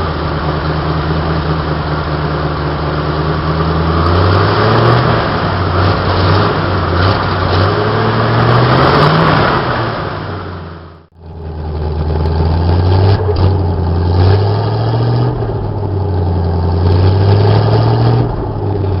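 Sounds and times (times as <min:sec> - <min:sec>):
truck engine running: 0:00.0 - 0:19.0.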